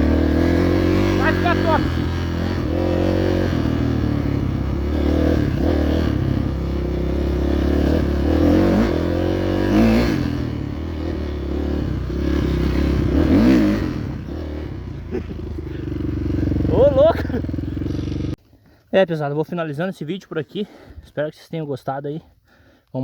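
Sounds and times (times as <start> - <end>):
dirt bike engine revving: 0.0 - 18.4.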